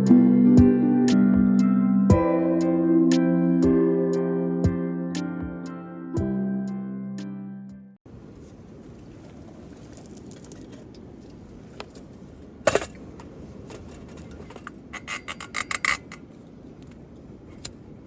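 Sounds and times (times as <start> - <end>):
outdoor background noise: 8.0 - 18.0.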